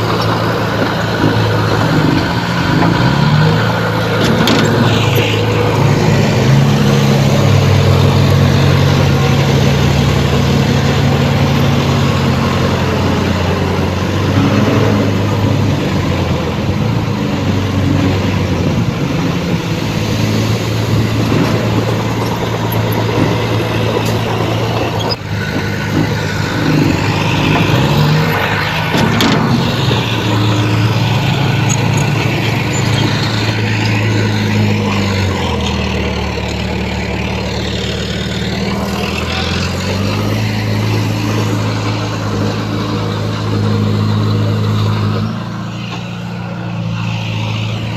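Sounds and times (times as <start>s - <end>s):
heavy machinery diesel engine running: 0.0s - 47.9s.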